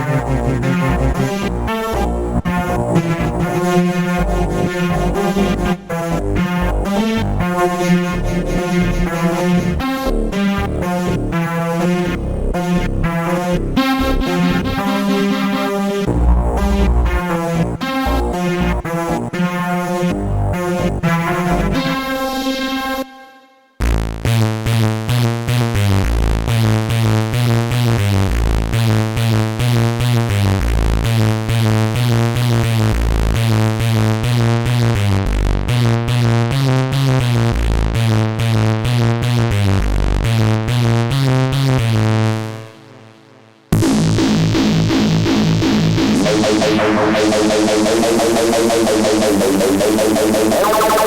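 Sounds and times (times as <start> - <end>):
synthesizer bass line: 0.0 - 22.6, 43.8 - 51.0
different synth sound: 43.8 - 51.0.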